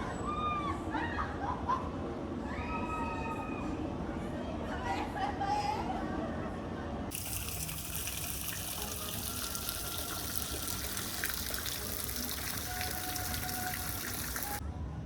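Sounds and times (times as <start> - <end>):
splashing water: 7.1 - 14.6.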